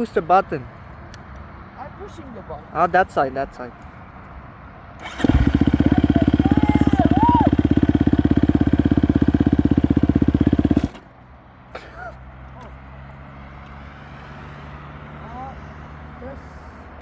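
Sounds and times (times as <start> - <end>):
electric starter: 5.0 - 11.1
motorcycle engine pulsing: 5.0 - 11.1.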